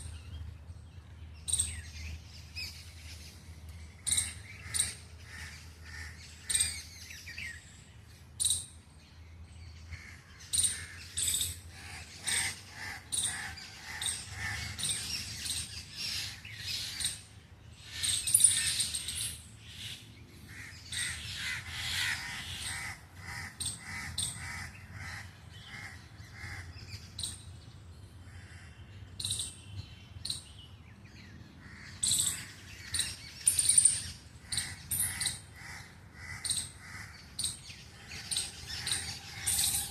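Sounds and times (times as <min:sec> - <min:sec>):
birds chirping: 0:00.0 - 0:39.9
harsh caw-like bird calls: 0:04.0 - 0:07.6, 0:09.8 - 0:27.4, 0:28.2 - 0:29.6, 0:31.5 - 0:39.9.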